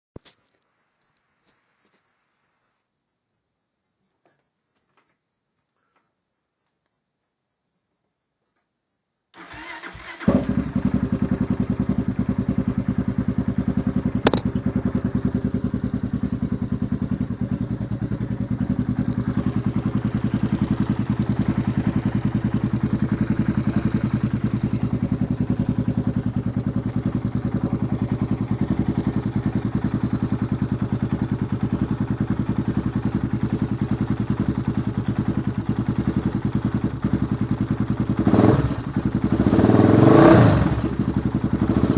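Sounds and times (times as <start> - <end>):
atv engine cranking and idling: 9.4 - 41.9
sharp click: 14.3 - 15.0.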